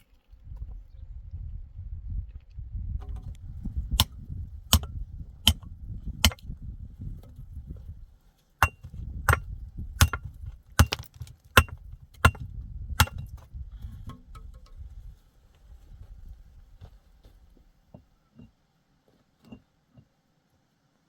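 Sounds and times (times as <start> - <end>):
metal tool striking with ringing clink: 4.7 - 4.9, 8.6 - 9.4.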